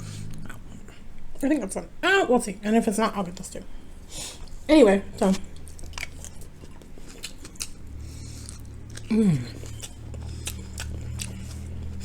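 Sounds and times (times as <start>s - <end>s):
person humming mm: 9.1s - 9.7s.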